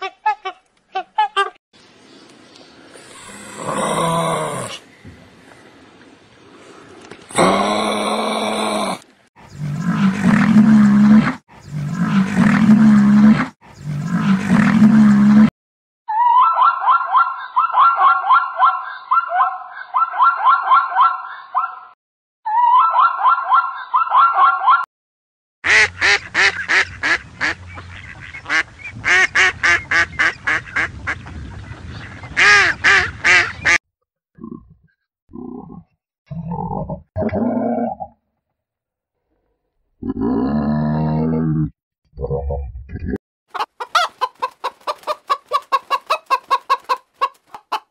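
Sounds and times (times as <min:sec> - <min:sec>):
duck quacking loudly: 0:25.7 - 0:30.9.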